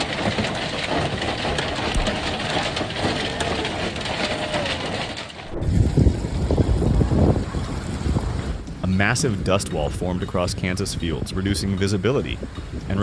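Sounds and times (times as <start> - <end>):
hail pattering on hard surfaces: 0.0 - 13.0
wind rumbling on microphone: 4.0 - 13.0.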